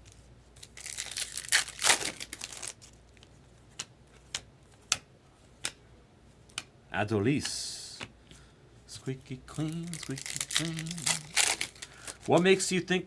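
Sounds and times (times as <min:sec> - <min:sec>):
wrapper tearing and crinkling: 0:00.6 - 0:03.0, 0:09.6 - 0:12.3
cards clicking: 0:01.0 - 0:05.8, 0:09.6 - 0:12.6.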